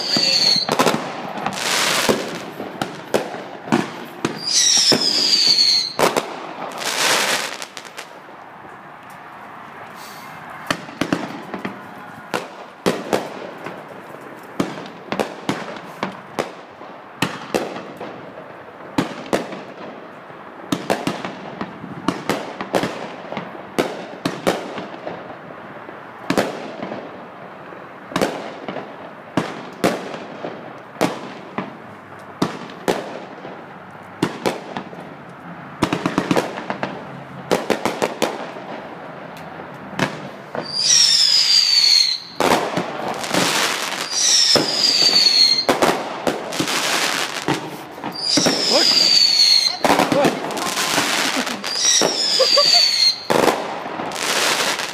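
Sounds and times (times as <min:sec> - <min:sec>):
fireworks bursting bangs: 0:00.0 - 0:08.3, 0:10.0 - 0:13.9, 0:14.5 - 0:20.1, 0:20.7 - 0:25.4, 0:32.4 - 0:35.0, 0:35.8 - 0:39.2, 0:39.9 - 0:54.9
noisy haze: 0:00.0 - 0:17.2, 0:19.6 - 0:54.9.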